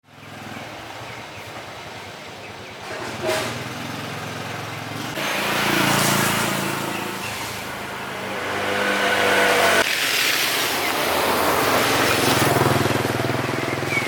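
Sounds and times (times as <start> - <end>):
small engine running: 11.2 - 14.0.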